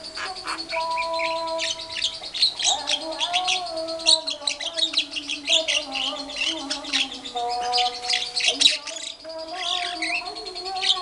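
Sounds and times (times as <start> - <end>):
bird singing rapid trill: 0.0 - 11.0
myna chattering: 0.0 - 11.0.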